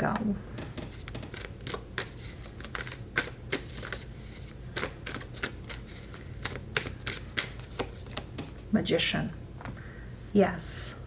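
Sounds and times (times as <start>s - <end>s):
cards being shuffled: 0.6s - 8.7s.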